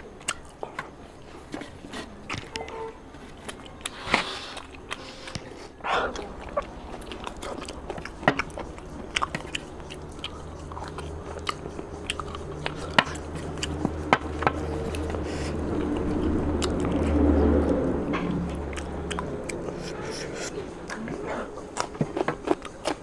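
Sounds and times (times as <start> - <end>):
low steady hum: 0.0 - 23.0
wet chewing mouth clicks: 6.1 - 23.0.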